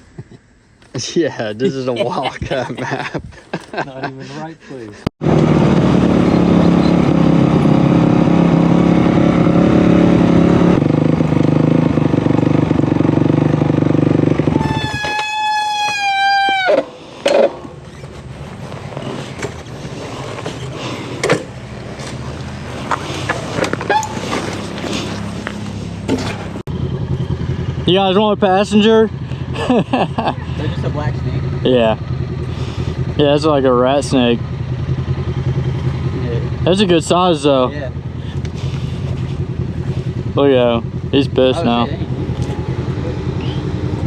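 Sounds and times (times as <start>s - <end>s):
engine running loudly: 5.2s - 14.8s, 22.3s - 44.0s.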